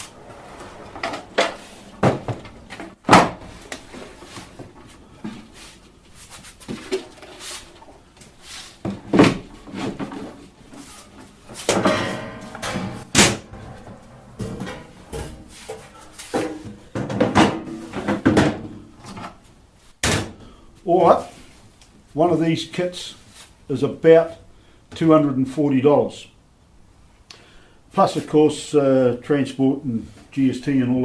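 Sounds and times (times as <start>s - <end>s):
wooden knocks and clunks: 1.0s - 3.9s.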